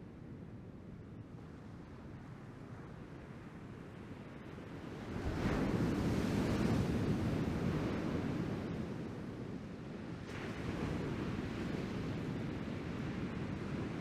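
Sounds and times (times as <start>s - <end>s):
steady ocean surf: 4.2s - 14.0s.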